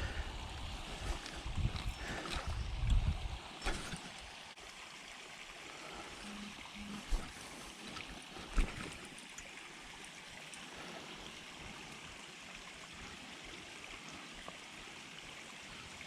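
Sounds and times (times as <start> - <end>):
rain falling on water: 3.6 - 16.0.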